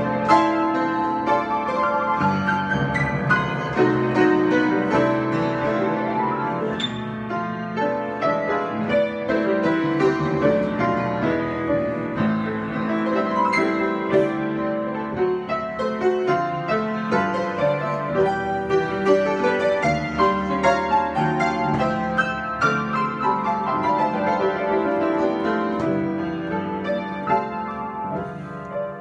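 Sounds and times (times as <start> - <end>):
solo piano improvisation: 0.0 - 29.0.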